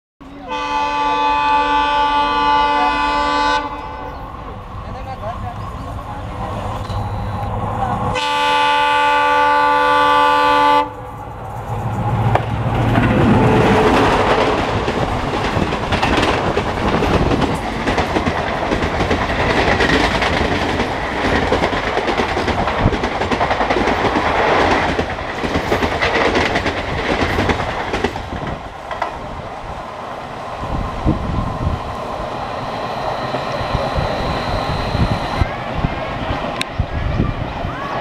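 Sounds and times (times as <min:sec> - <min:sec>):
locomotive horn blast: 0:00.4 - 0:04.2, 0:08.1 - 0:11.0
train wheels clattering over rail joints: 0:11.6 - 0:29.4.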